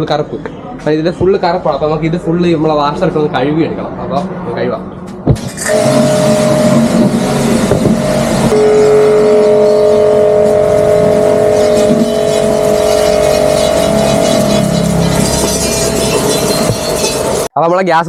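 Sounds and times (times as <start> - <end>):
pressure washer motor humming: 5.4 - 17.5
water jet hissing: 5.4 - 17.5
low hum tone: 5.6 - 17.5.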